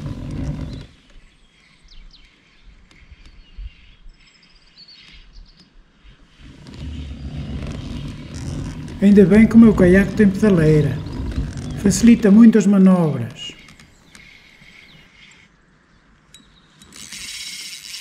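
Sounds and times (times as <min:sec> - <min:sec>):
low rumbling noise: 0:00.0 - 0:00.9, 0:06.4 - 0:13.6
small birds chirping: 0:00.0 - 0:16.9.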